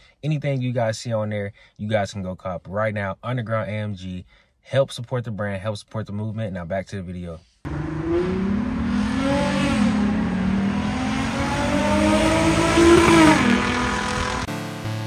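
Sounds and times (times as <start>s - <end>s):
car engine revving: 7.7s - 14.5s.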